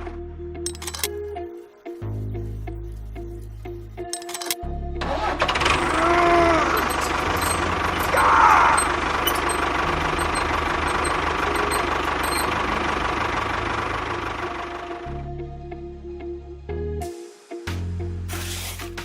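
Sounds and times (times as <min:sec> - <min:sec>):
engine running: 0:00.7 - 0:01.2, 0:02.2 - 0:15.4
wavering squeal: 0:05.7 - 0:12.6.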